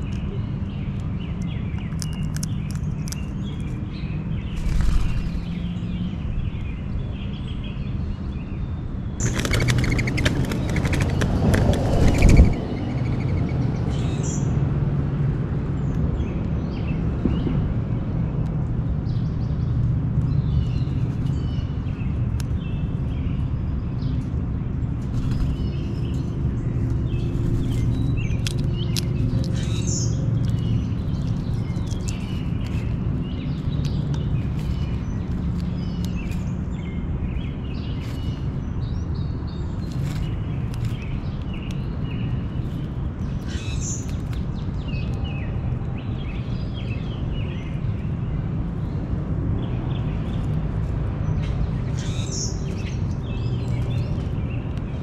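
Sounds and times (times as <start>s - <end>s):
birds chirping: 0.0s - 14.6s, 15.8s - 55.0s.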